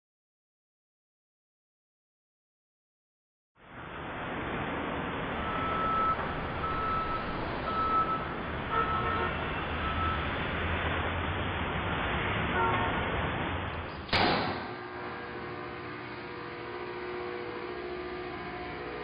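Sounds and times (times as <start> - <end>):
street traffic rumble: 3.6 - 19.0
high electronic beeps: 5.4 - 10.3.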